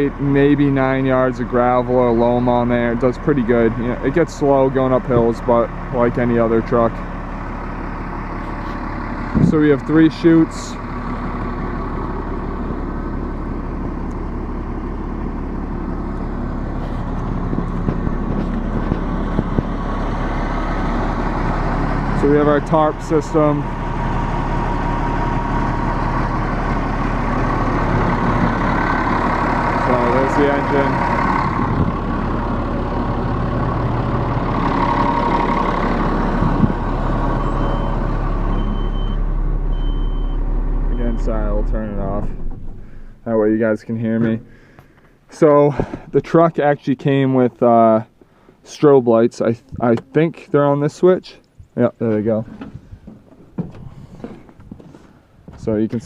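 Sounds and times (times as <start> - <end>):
diesel truck engine idling: 0.0 - 56.0
short high beeps: 39.8 - 41.2.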